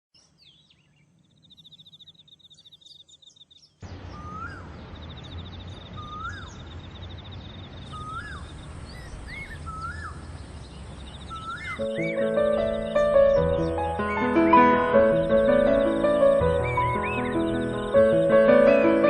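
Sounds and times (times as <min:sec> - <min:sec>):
bird whistled call: 0:04.1 - 0:04.7, 0:06.0 - 0:06.6, 0:07.8 - 0:10.2, 0:11.2 - 0:12.9, 0:16.6 - 0:18.0.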